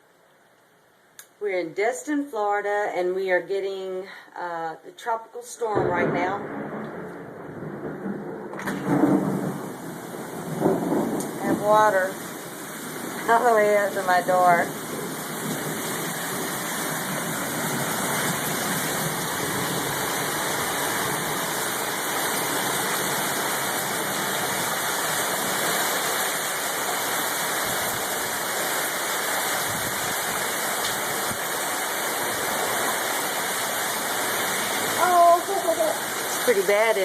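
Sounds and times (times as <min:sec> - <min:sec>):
heavy rain falling: 0:05.8 - 0:37.0.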